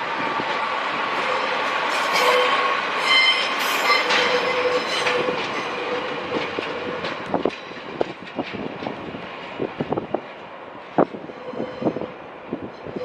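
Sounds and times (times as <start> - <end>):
train wheels squealing: 1.4 - 6.1, 11.3 - 12.1, 12.7 - 13.0.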